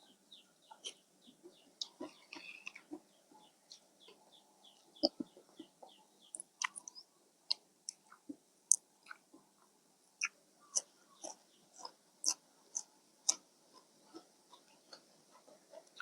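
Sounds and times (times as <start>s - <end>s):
bird chirping: 0.0s - 7.2s, 10.2s - 13.4s.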